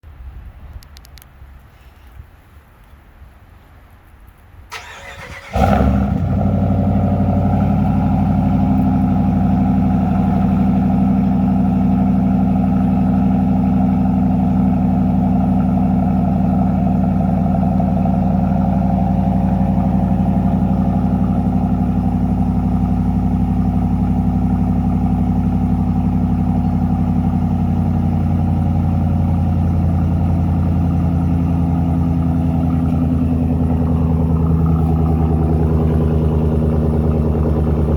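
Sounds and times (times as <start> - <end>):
engine starting and idling: 4.7 - 9.4, 31.7 - 37.9.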